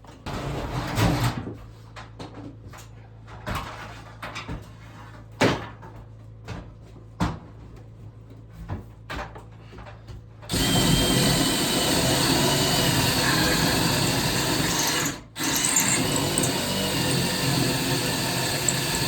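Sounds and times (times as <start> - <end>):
power tool running: 10.5 - 19.0.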